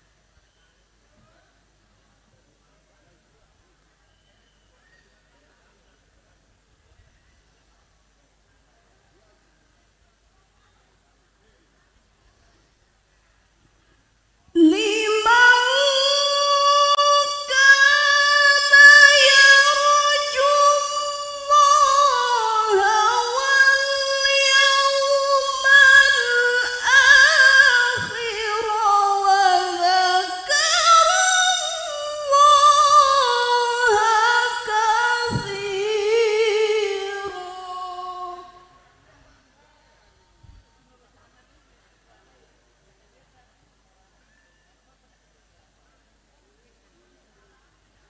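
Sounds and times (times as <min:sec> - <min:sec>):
woman reciting melodically: 0:14.5 - 0:39.6.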